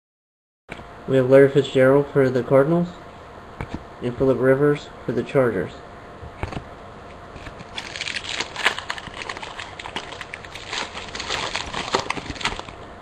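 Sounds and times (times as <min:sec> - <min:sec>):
card pack wrapper crinkling: 0:07.4 - 0:12.8.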